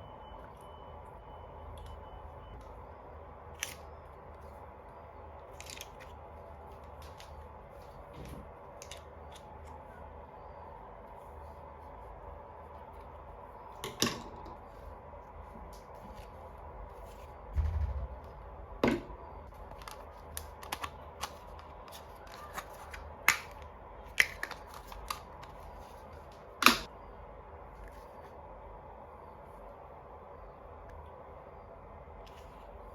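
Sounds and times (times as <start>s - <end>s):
dull thump: 17.5s - 19.0s.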